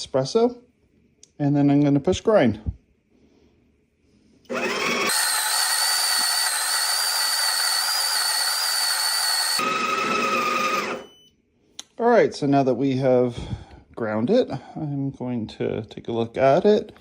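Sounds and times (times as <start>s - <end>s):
coffee grinder whining: 4.5s - 11.1s.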